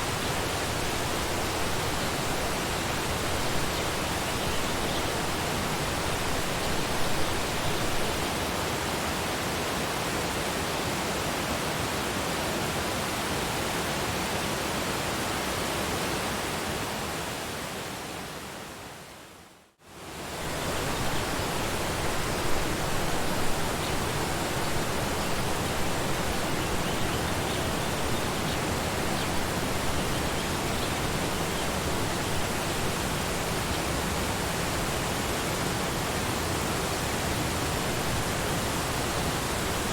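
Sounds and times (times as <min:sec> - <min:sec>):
waterfall rushing: 0:20.4 - 0:39.9.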